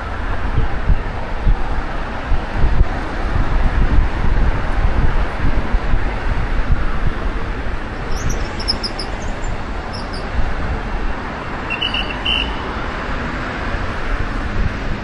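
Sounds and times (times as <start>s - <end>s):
road traffic: 0.0s - 15.0s
wind buffeting microphone: 0.0s - 15.0s
bird chirping: 8.1s - 10.3s, 11.7s - 12.6s
low bird chirp: 8.1s - 10.3s, 11.7s - 12.6s.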